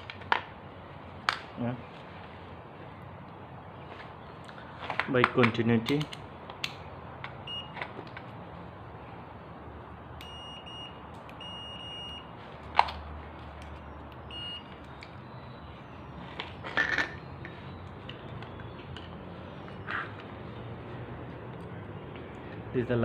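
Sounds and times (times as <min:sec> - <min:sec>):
multimeter buzzer beeping: 0:10.2 - 0:12.3, 0:14.3 - 0:14.8.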